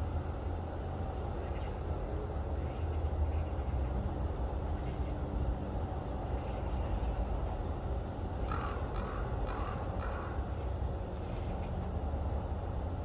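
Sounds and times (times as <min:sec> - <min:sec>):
raven calling: 0:08.4 - 0:10.6.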